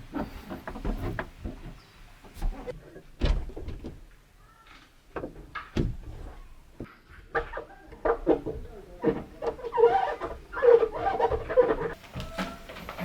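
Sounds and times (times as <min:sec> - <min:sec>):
irregular knocks and clatter: 0:00.0 - 0:04.2, 0:05.1 - 0:09.6.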